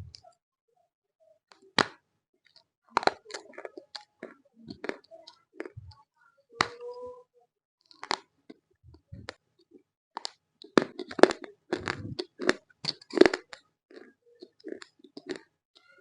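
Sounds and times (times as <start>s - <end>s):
crunching and chewing: 1.8s - 6.0s, 7.8s - 9.4s, 10.2s - 16.0s.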